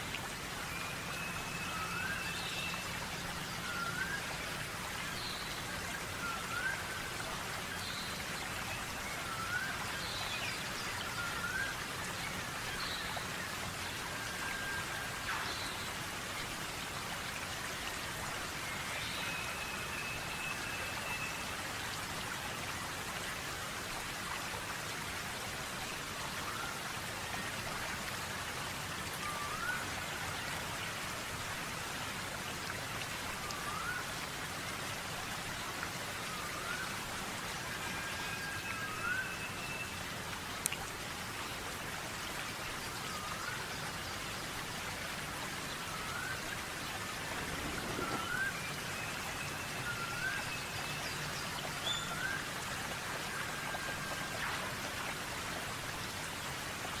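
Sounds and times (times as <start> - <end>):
steady hiss: 45.8 - 52.0
bird long level whistles: 47.4 - 50.6.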